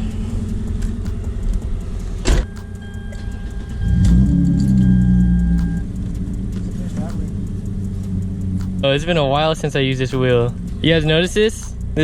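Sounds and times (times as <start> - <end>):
car engine idling: 0.0 - 12.0
car door shutting: 0.8 - 4.8
electronic chime tone: 2.3 - 5.9.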